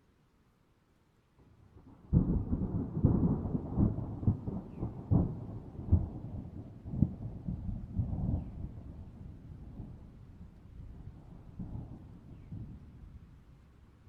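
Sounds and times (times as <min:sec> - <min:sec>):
thunder clap and rumble: 0:02.0 - 0:13.0.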